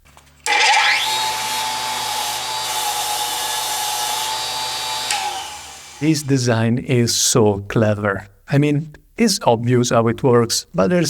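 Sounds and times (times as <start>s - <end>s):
power tool whining: 0.4s - 6.3s.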